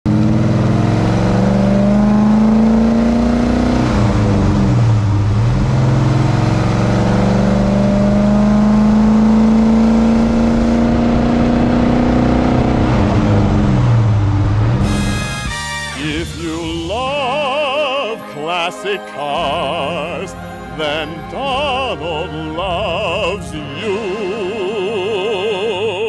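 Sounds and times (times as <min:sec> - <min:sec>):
car engine revving through gears: 0:00.1 - 0:16.5.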